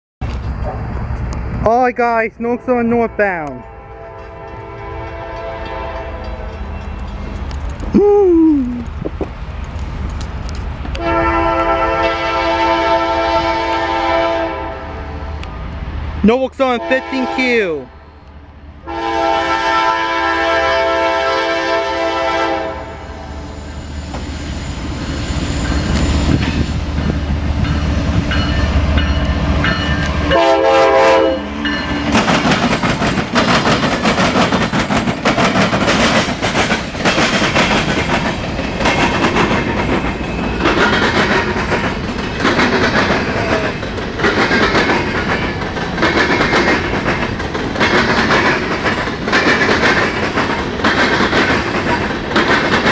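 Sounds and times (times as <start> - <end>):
train air horn blasts: 2.6 - 6.5, 11.0 - 15.0, 16.7 - 17.7, 18.9 - 23.2, 30.3 - 31.6
wheels clacking on rails: 3.4 - 8.0, 23.6 - 52.9.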